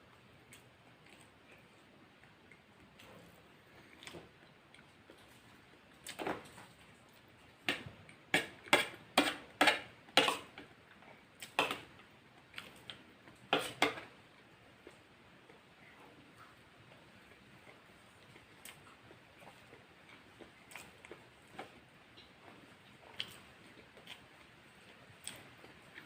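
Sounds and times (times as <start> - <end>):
crunchy chewing: 16.4 - 26.0.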